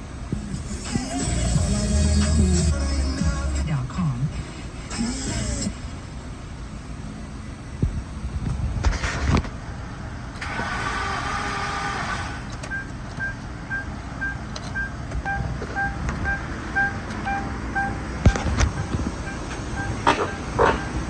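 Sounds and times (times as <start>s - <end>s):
low vehicle rumble: 0.0s - 21.0s
electronic warning beep: 12.7s - 21.0s.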